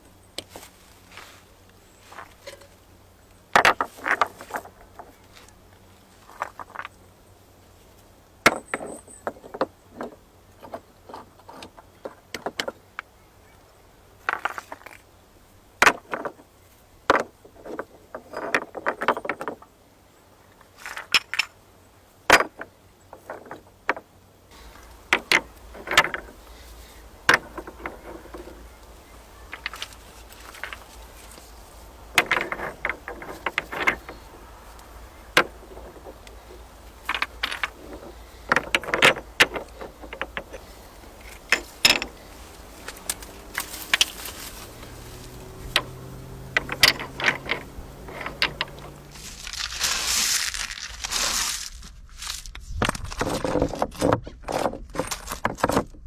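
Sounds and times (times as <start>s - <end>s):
knocks and clicks of woodwork: 24.7s - 26.4s, 27.2s - 30.9s, 32.1s - 34.3s, 35.3s - 42.2s.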